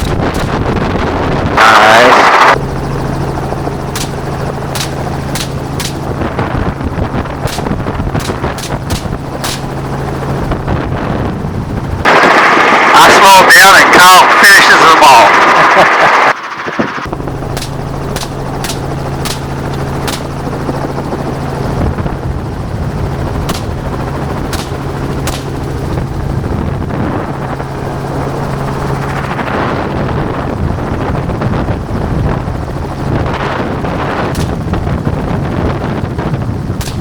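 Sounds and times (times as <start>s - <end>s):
gunshots: 0.0s - 0.8s, 3.9s - 6.2s, 7.4s - 9.8s, 17.5s - 20.3s, 23.5s - 25.7s, 34.3s - 34.8s, 36.8s - 37.0s
helicopter rotor and engine drone: 0.0s - 37.0s.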